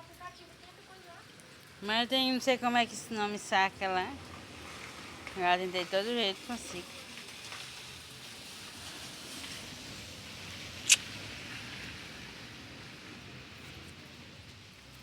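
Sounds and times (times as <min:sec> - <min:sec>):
sharp click: 0:10.8 - 0:11.1.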